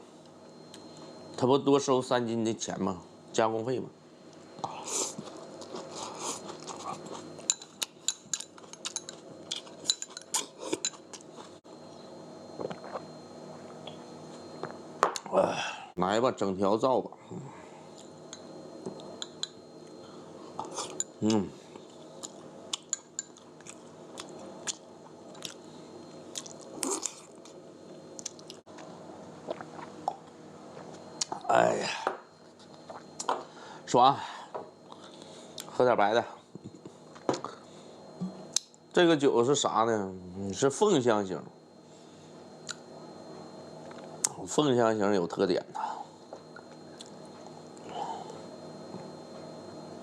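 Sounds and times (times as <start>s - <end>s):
person chewing food: 4.6s - 11.6s, 20.6s - 27.6s, 28.2s - 31.3s
utensils clinking on dishes and glass: 7.5s - 11.0s.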